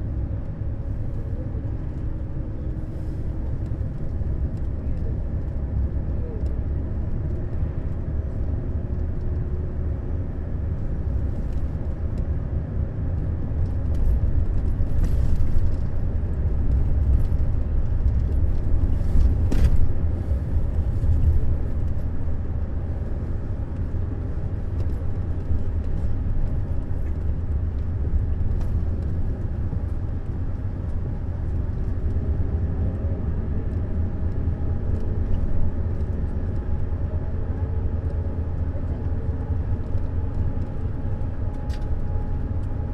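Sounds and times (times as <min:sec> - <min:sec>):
coach engine and road rumble: 0:00.0 - 0:42.9.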